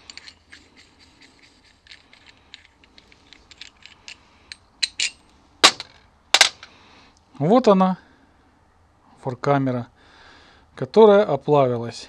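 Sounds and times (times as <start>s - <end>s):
metal tools clicking and tapping: 0.0s - 6.7s
loud metal clanks: 4.9s - 6.7s.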